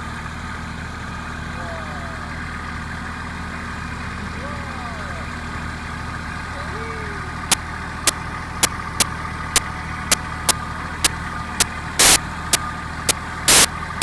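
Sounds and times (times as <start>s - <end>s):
tractor engine running: 0.0s - 14.0s
loud bursts of noise: 12.0s - 12.2s, 13.5s - 13.7s
sharp clicks: 12.0s - 12.2s, 13.5s - 13.7s.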